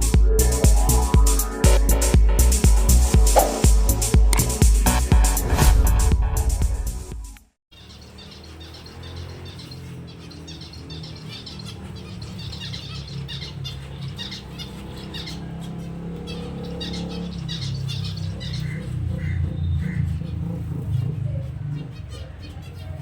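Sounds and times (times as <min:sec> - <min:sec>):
low drone: 0:00.0 - 0:07.1
finches chirping: 0:07.7 - 0:23.0.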